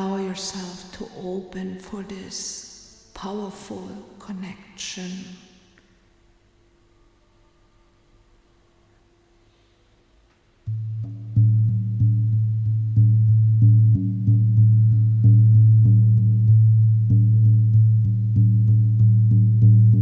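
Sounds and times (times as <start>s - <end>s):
low droning tone: 10.7s - 20.0s.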